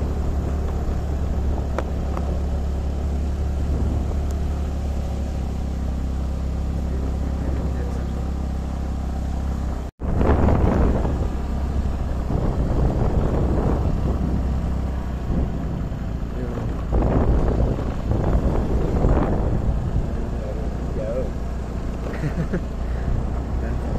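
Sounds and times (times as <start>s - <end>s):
wind noise on microphone: 0.0s - 5.7s, 10.0s - 20.7s
motorcycle engine drone: 0.0s - 23.9s.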